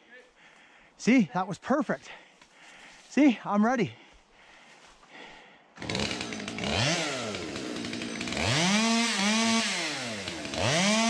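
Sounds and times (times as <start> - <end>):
two-stroke chainsaw revving: 5.8 - 11.0.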